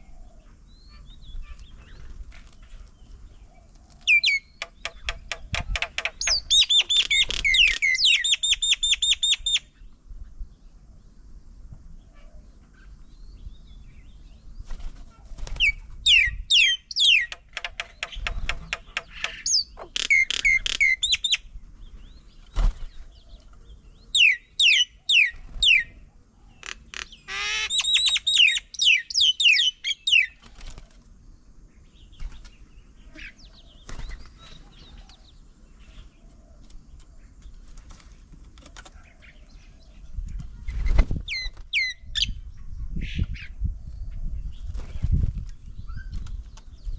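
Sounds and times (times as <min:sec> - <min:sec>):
songbirds whistling: 0:00.0 - 0:10.7, 0:12.0 - 0:37.6, 0:38.8 - 0:46.9
bird rattling chatter: 0:04.1 - 0:08.0, 0:17.0 - 0:21.1.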